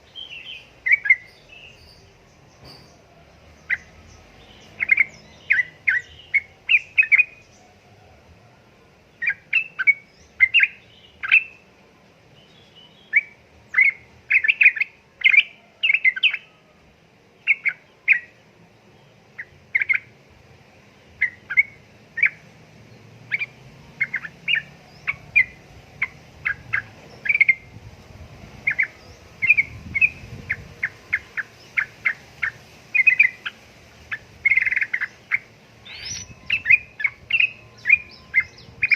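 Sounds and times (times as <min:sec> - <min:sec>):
bird singing bubbly chirps: 0:28.6 - 0:38.9.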